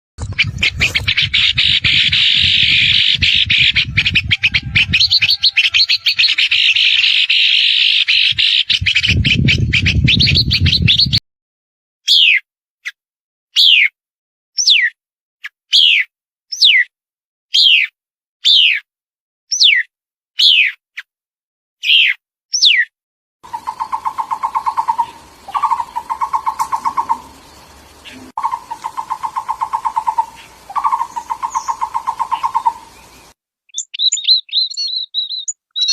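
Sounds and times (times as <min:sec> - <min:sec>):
songbirds chirping: 0:00.4 - 0:08.8, 0:23.4 - 0:35.9
bird whistled falling call: 0:23.5 - 0:33.2.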